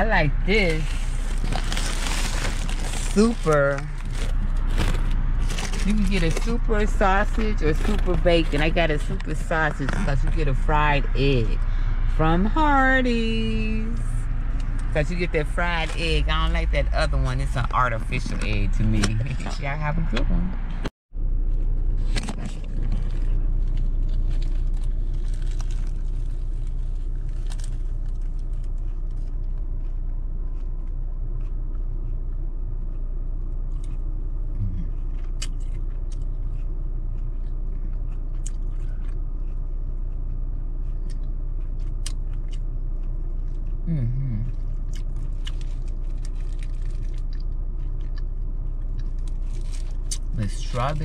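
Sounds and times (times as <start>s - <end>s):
car interior rumble: 0.0s - 51.0s
closed-mouth hum: 0.0s - 51.0s
person chewing and biting: 0.9s - 6.5s, 21.6s - 51.0s.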